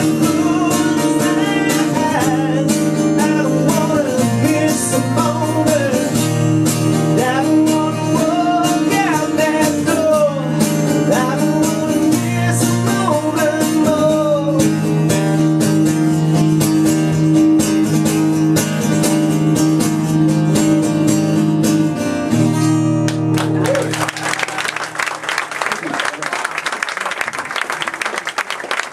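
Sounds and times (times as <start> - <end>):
acoustic guitar strumming: 0.0 - 23.6
sliding guitar melody: 0.0 - 23.9.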